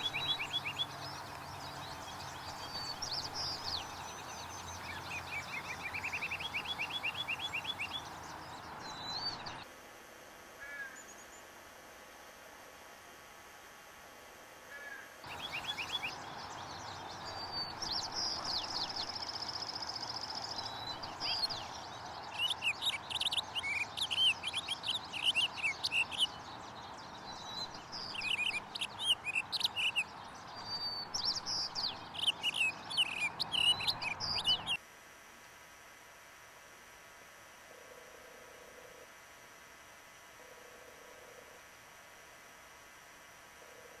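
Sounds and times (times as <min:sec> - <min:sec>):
high bird chirping: 0:00.0 - 0:09.6, 0:15.3 - 0:34.8
steady hiss: 0:00.0 - 0:09.6, 0:15.3 - 0:30.0.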